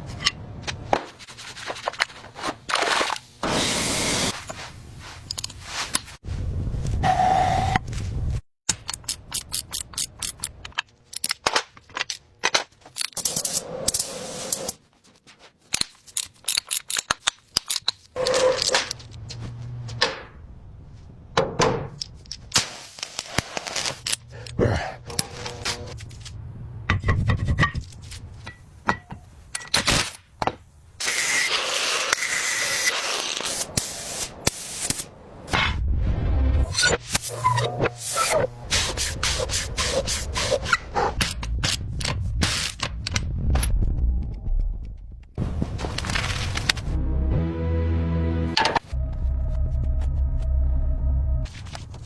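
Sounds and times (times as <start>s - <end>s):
steady scraping: 37.2s - 42.4s.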